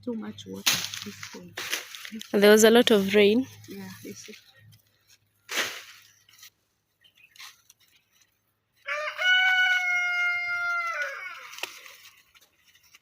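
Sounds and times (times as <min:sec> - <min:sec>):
rooster crowing: 0:08.8 - 0:11.6.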